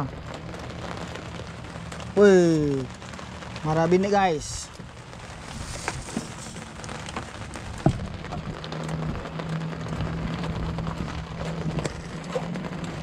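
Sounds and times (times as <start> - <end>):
rain pattering: 0.0 - 13.0.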